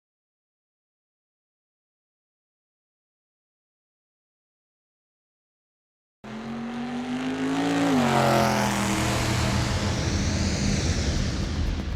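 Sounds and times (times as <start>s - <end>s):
car engine accelerating: 6.2s - 11.9s.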